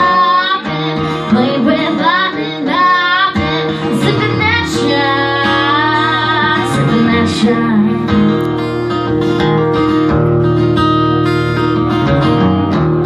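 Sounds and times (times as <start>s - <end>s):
woman singing country song: 0.0s - 10.1s
guitar: 0.0s - 13.0s.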